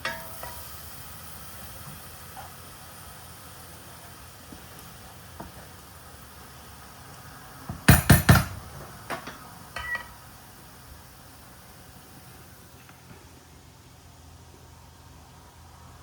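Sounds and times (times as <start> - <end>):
loud knocks: 7.7 - 8.6.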